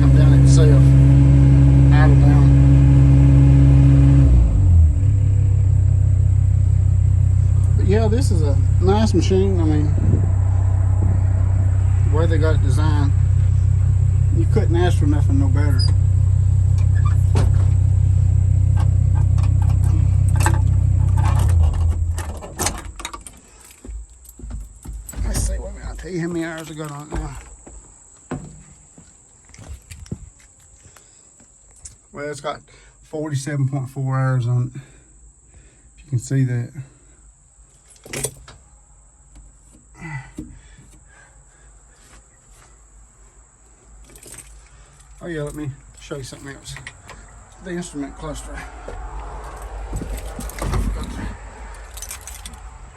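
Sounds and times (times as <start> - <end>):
diesel engine idling: 0.0 - 22.4
knocks and clicks in cab: 18.8 - 27.5, 49.9 - 52.6.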